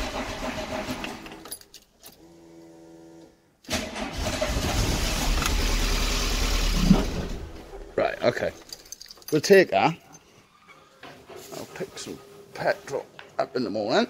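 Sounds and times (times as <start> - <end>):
car engine starting: 0.0 - 1.5, 3.7 - 8.0.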